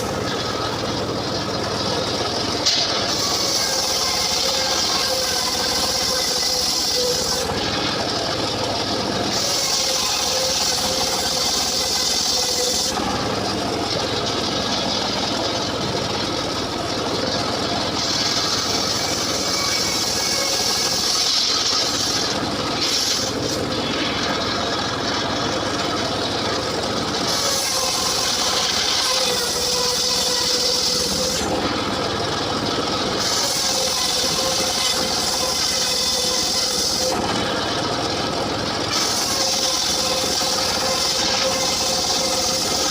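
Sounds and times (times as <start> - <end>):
engine running steadily: 0.0 - 42.9
saw blade cutting wood: 0.0 - 42.9.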